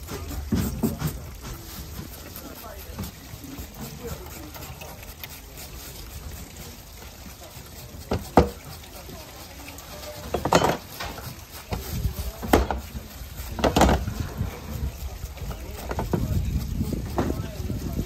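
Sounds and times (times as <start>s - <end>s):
hard objects knocking and clattering: 0.0s - 2.1s, 10.2s - 12.9s, 13.5s - 14.5s
background murmur: 0.0s - 18.0s.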